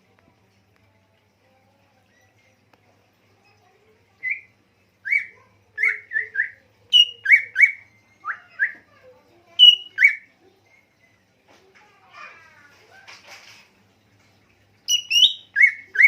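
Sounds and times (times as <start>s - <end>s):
songbird whistling: 4.2s - 8.8s, 9.6s - 10.3s, 14.9s - 16.0s.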